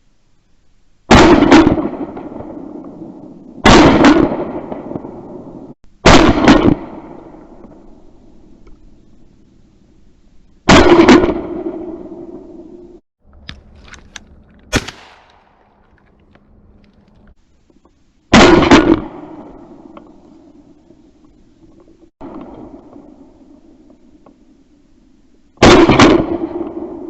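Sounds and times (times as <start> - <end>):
shotgun blasts with echo: 1.1 - 3.0, 3.6 - 5.4, 6.0 - 7.5, 10.7 - 12.2, 14.7 - 15.9, 18.3 - 19.8, 25.6 - 27.0.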